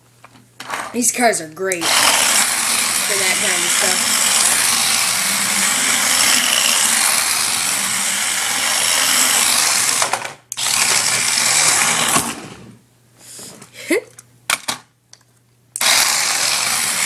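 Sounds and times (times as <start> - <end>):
toy car motor whirring: 1.8 - 12.6, 15.8 - 17.0.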